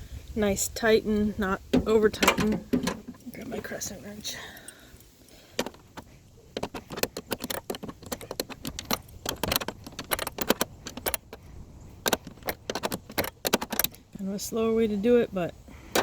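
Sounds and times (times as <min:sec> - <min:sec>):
wrench clicking on bolts: 0:05.6 - 0:14.0.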